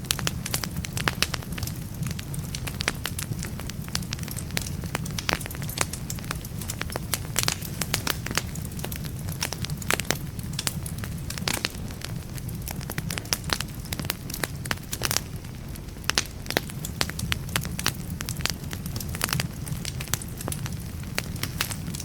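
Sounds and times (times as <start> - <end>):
fire popping and snapping: 0.0 - 22.0
fire rumbling: 0.0 - 22.0.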